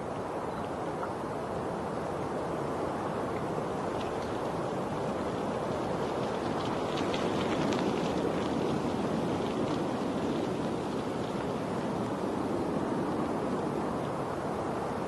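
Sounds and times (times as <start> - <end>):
faint crackling splashes: 3.2 - 14.2.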